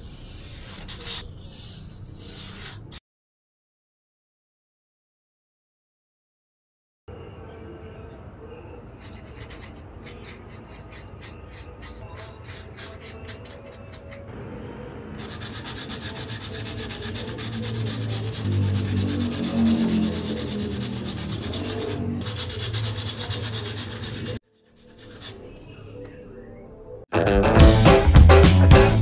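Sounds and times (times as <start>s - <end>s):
hand sanding strokes: 9.0s - 14.3s, 15.2s - 25.6s
loud drum-led music: 27.2s - 29.0s.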